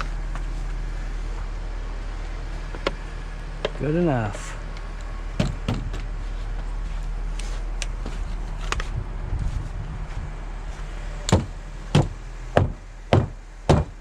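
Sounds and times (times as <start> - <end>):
steady low hum: 0.0 - 14.0
regular sharp knocks: 11.3 - 14.0.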